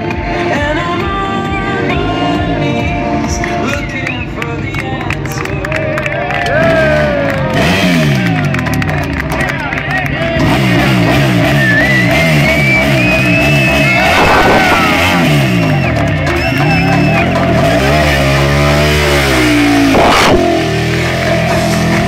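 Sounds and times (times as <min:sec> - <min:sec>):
loud music from speakers: 0:00.0 - 0:08.4
motorcycle engine revving: 0:00.0 - 0:22.0.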